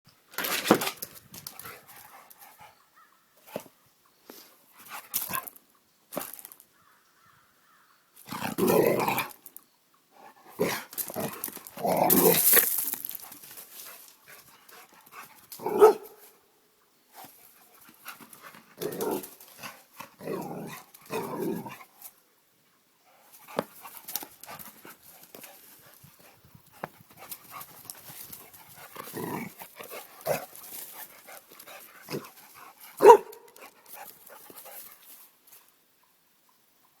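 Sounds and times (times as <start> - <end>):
dog barking: 15.7 - 16.2, 33.0 - 33.6.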